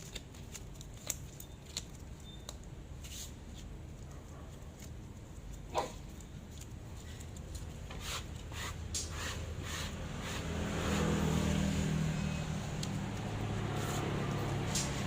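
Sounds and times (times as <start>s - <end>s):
low engine hum: 9.5s - 15.0s.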